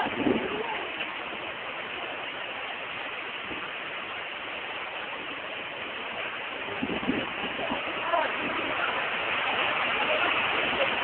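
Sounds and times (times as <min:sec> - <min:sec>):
water rushing: 0:00.0 - 0:11.0.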